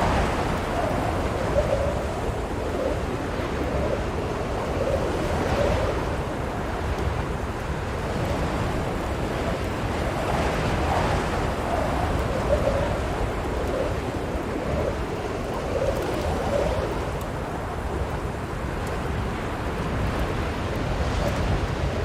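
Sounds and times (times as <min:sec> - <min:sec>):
blizzard wind howling: 0:00.0 - 0:22.0.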